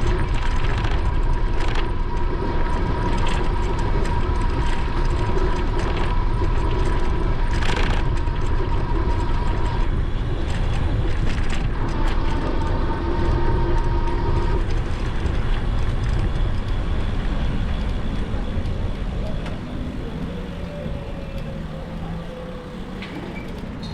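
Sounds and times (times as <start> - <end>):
wind on microphone: 0.0 - 23.9
electric motor whine: 19.4 - 23.9.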